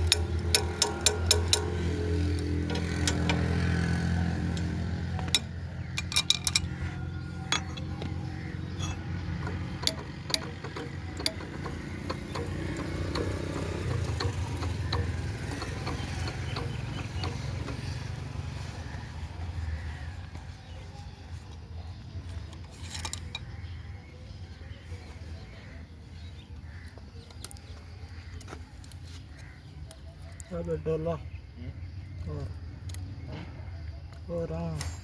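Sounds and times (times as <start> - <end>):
sharp clicks and knocks: 0.0 - 6.8, 7.5 - 18.3
diesel engine humming: 0.0 - 25.8.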